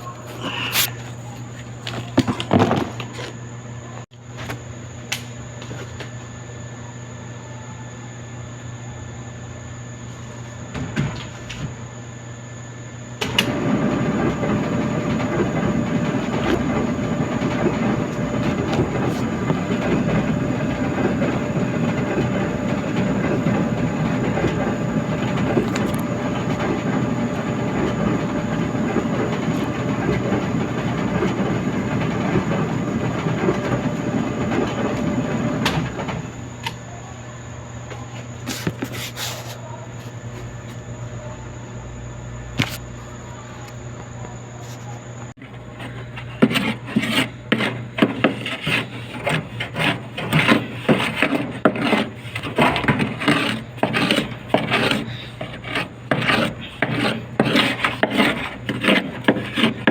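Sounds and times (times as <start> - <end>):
clothes dryer rumbling: 0.0 - 3.2, 13.2 - 41.3, 42.4 - 59.9.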